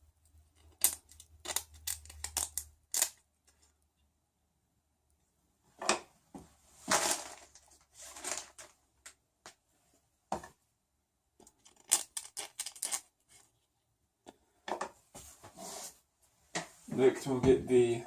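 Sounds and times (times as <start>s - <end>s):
plastic parts clicking and rustling: 0.5s - 3.7s, 6.9s - 9.2s, 11.4s - 13.5s.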